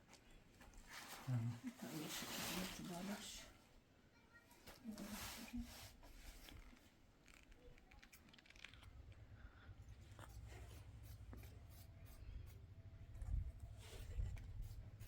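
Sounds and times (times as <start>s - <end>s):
clicks and rustles of handwork: 4.6s - 9.2s.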